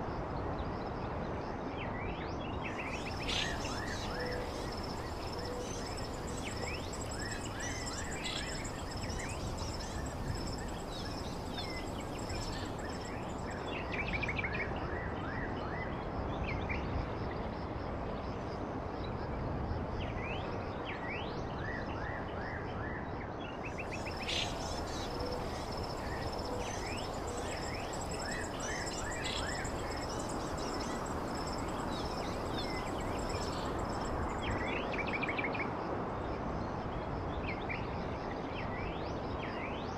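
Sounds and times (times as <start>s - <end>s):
steady low background hiss: 0.0s - 14.9s, 23.6s - 35.5s
songbirds chirping: 2.3s - 14.7s, 23.6s - 35.3s.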